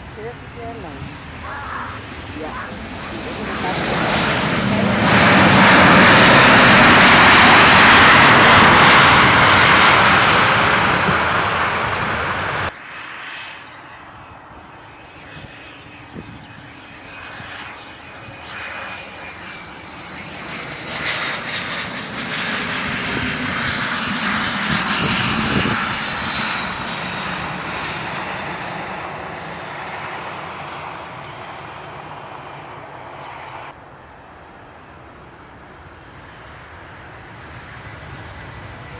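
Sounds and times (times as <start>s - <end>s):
jet engines roaring: 0.0s - 38.9s
jet passing with turbine whine: 0.0s - 38.9s.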